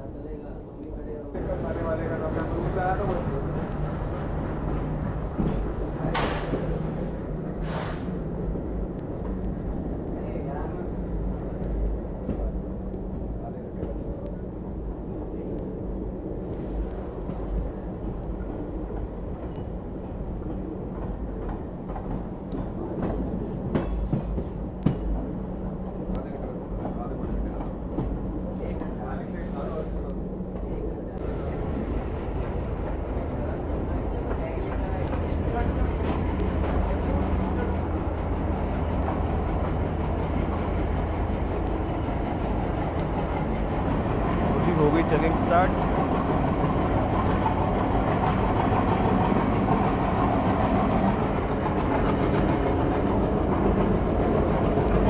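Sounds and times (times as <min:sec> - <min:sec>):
diesel train rumble and hum: 0:00.0 - 0:55.0.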